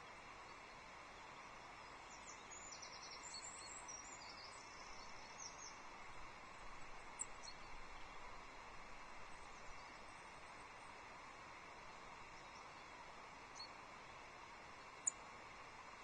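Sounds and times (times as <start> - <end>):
outdoor background hiss: 0.0 - 16.0
songbirds chirping: 0.0 - 16.0.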